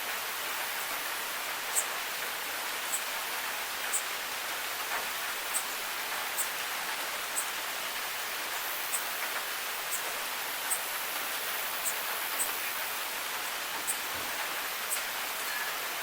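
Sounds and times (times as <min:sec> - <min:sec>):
rain hiss: 0:00.0 - 0:16.0
sharp drip ticks: 0:01.7 - 0:04.2, 0:04.8 - 0:14.2, 0:14.8 - 0:15.2.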